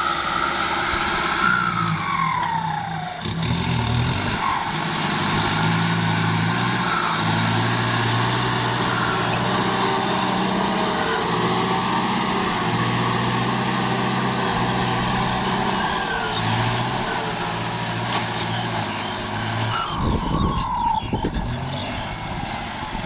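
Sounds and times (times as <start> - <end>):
tractor diesel engine running: 0.0 - 23.0
short falling whine: 6.8 - 22.5.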